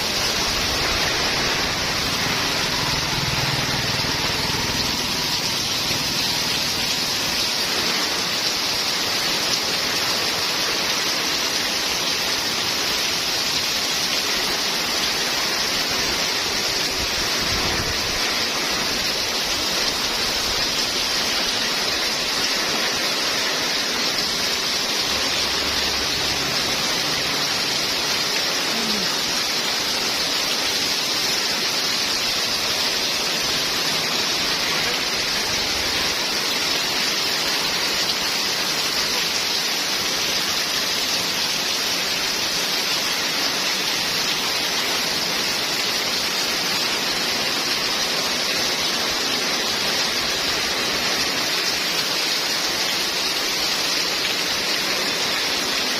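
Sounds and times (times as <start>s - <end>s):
heavy rain pouring: 0.0s - 55.9s
strong wind: 16.9s - 18.3s.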